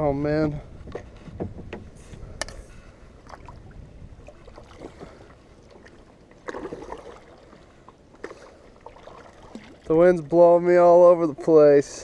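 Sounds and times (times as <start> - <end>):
wind rumble on microphone: 0.0 - 5.5
water splashing and dripping: 3.2 - 7.6, 8.2 - 10.3
kayak paddle strokes: 4.4 - 10.0.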